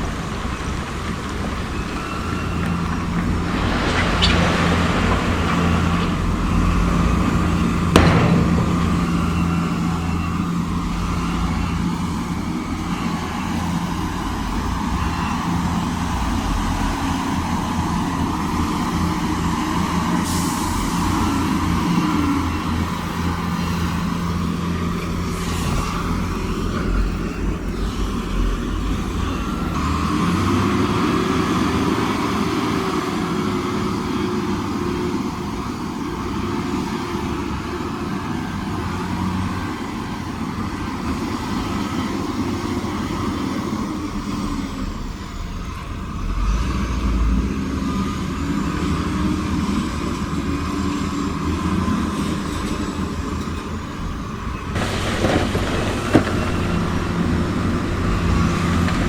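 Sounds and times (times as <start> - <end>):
heavy diesel machinery running: 0.0 - 59.0
heavy low rumble: 2.8 - 11.2, 54.8 - 59.0.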